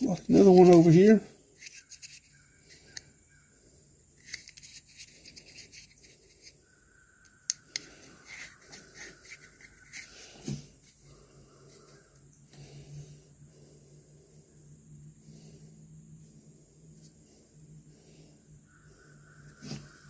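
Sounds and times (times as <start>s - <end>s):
light clicks and rubbing: 0.0s - 3.1s, 4.2s - 6.6s, 7.5s - 11.0s.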